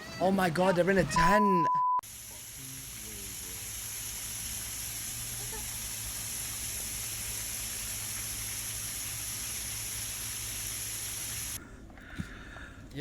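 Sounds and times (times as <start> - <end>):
heavy rain hissing: 2.0 - 11.6.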